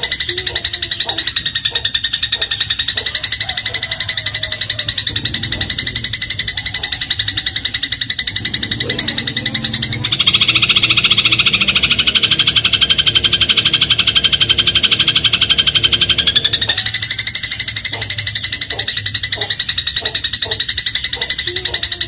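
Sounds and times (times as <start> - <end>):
sparrow chattering trill: 0.0 - 22.0.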